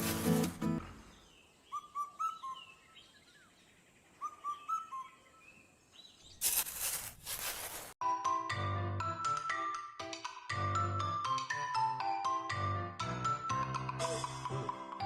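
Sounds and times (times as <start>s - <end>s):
whistled bird chirps: 1.3s - 3.5s, 4.1s - 6.4s.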